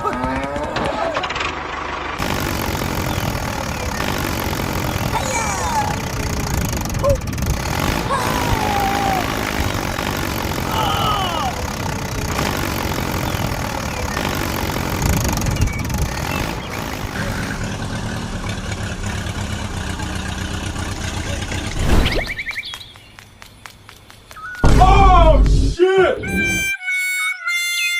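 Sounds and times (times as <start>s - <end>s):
engine running with low pulsing: 0.0s - 23.5s
sudden loud burst: 24.6s - 25.8s.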